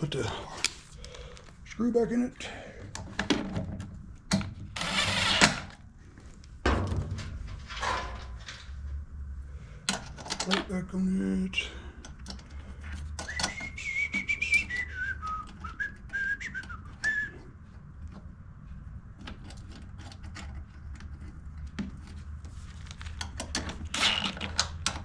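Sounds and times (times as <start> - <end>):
low steady hum: 0.0 - 25.0
person whistling a tune: 13.2 - 17.5.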